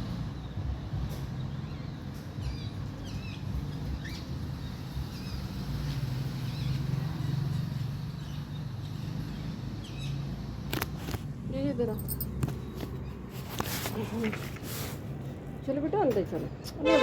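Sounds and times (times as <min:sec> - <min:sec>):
birds chirping: 0:00.4 - 0:10.7, 0:11.5 - 0:14.6.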